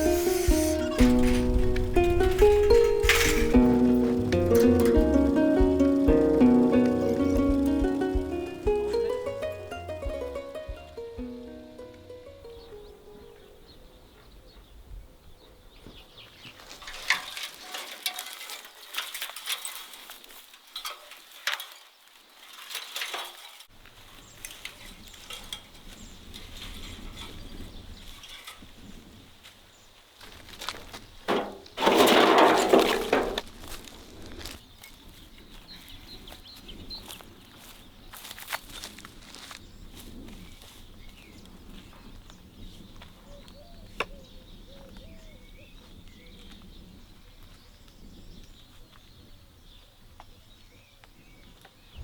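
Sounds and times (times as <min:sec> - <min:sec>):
wood clatter: 0:00.0 - 0:08.2, 0:16.6 - 0:20.2, 0:30.4 - 0:34.6.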